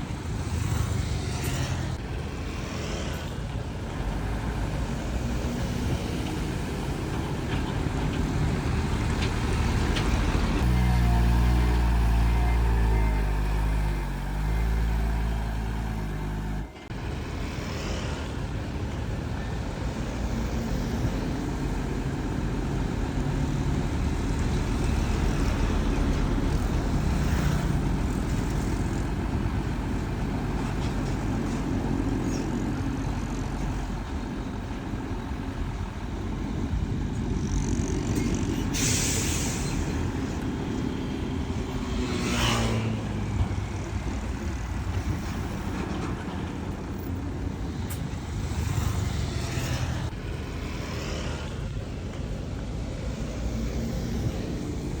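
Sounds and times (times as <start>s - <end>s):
heavy diesel engines running: 0.0s - 55.0s
air brake hiss: 38.6s - 40.1s.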